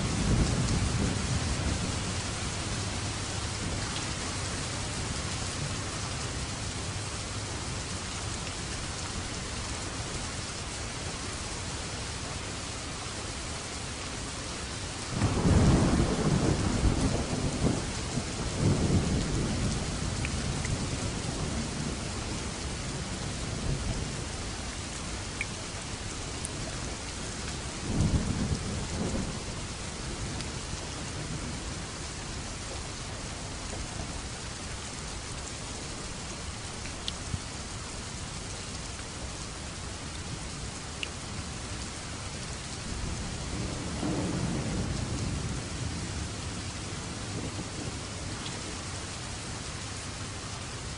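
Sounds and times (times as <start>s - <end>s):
thunder rumbling: 0.0s - 5.8s, 15.1s - 24.4s, 27.8s - 31.9s, 42.3s - 48.4s
steady rain: 0.0s - 50.9s.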